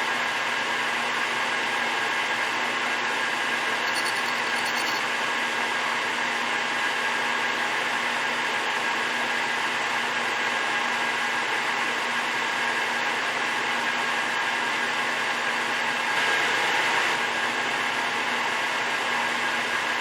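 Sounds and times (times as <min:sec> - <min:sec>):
lathe whirring: 0:03.3 - 0:05.2.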